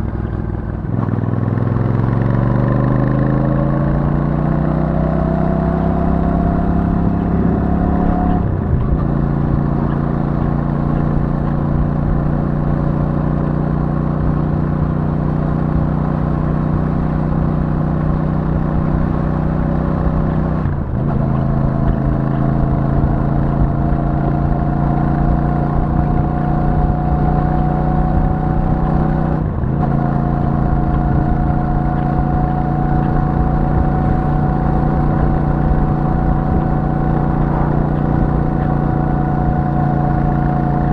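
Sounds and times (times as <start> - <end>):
motorcycle engine accelerating: 0.0 - 40.9
gear shifting: 15.7 - 40.9.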